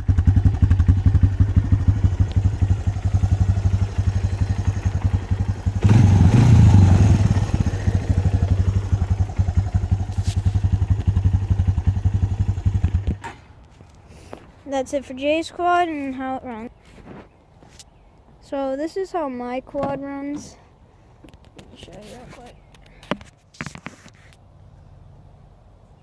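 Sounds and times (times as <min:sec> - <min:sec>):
engine revving: 0:00.0 - 0:13.2
atv engine idling: 0:00.0 - 0:13.3.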